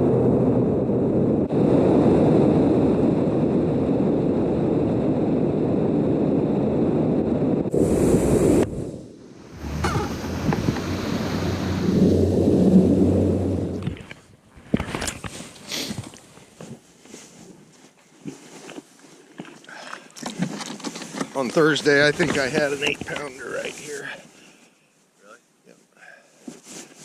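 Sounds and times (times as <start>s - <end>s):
wind noise on microphone: 0.0s - 16.2s
boat engine hum: 7.8s - 14.2s
rushing water: 9.4s - 13.8s.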